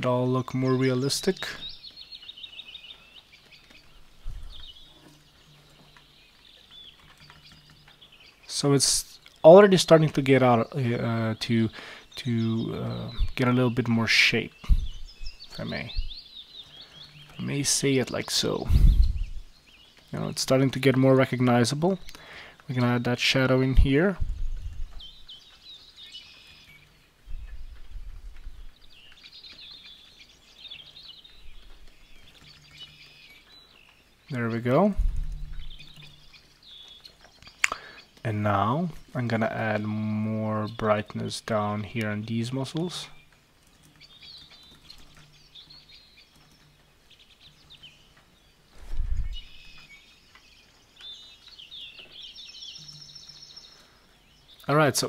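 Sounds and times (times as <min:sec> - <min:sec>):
faint birds chirping: 0:00.0 - 0:55.0
dull low thump: 0:14.6 - 0:15.4, 0:34.9 - 0:36.0.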